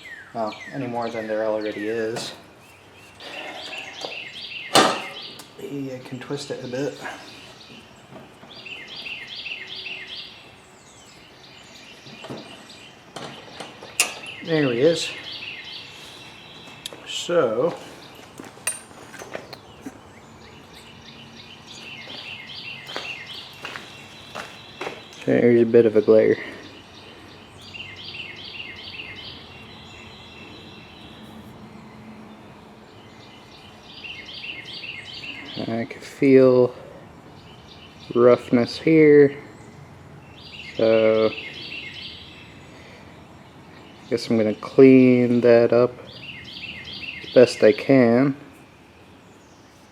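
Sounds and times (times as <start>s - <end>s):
small bird chirping: 0.0s - 18.3s, 26.6s - 35.8s
faint outdoor background noise: 0.0s - 49.9s.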